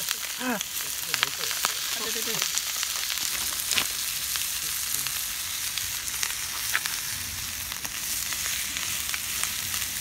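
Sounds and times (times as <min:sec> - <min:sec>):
campfire pops: 0:00.0 - 0:10.0
food sizzling over campfire: 0:00.0 - 0:10.0.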